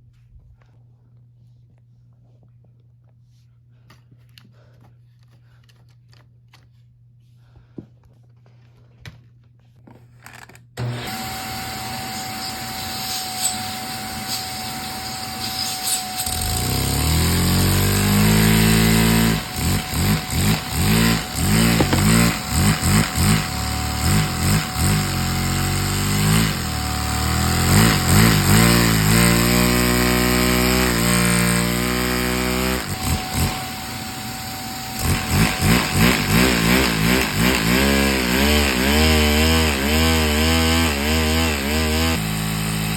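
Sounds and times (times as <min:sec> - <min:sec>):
toy motor whining: 0:10.9 - 0:40.6.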